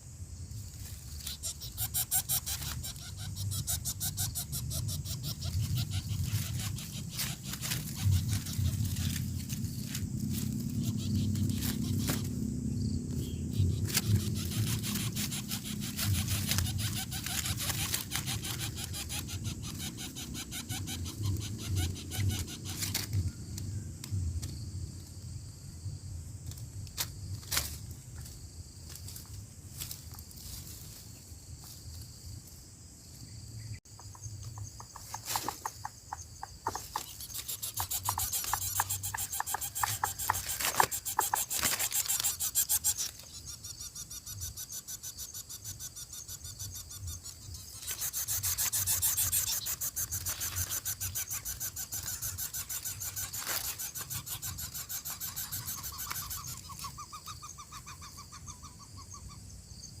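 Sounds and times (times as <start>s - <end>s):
nestlings begging with rasping calls: 1.2s - 10.0s, 10.6s - 12.5s, 13.2s - 23.2s, 34.8s - 59.4s.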